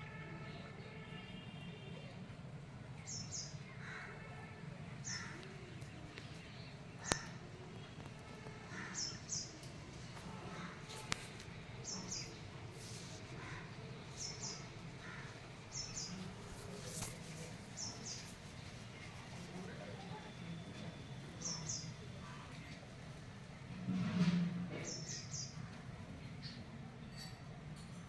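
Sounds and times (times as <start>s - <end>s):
crow cawing: 3.8s - 4.2s, 5.1s - 5.4s, 8.7s - 9.2s, 13.4s - 13.8s, 15.0s - 15.4s.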